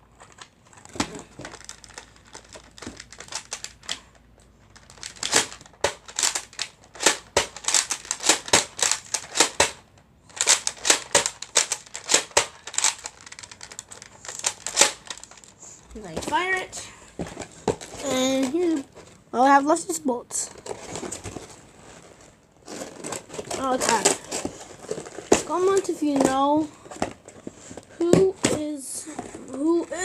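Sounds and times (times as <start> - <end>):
plastic packaging crinkling: 0.1 - 9.6, 10.3 - 15.8, 20.5 - 28.0.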